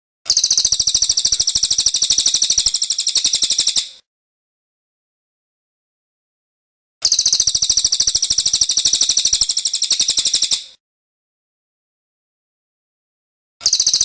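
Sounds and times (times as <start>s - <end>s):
songbird high-pitched trill: 0.3s - 4.0s, 7.0s - 10.8s, 13.6s - 14.0s.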